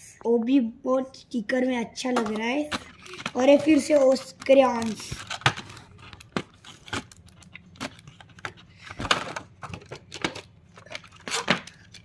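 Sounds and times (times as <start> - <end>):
packaging rustling: 2.7 - 12.0.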